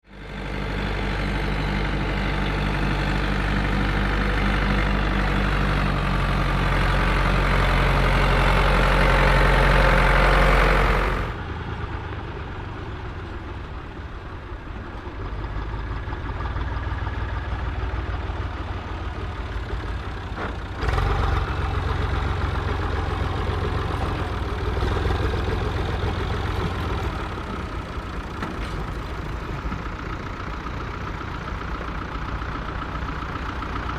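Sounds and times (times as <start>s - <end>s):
tractor engines running: 0.0s - 33.9s.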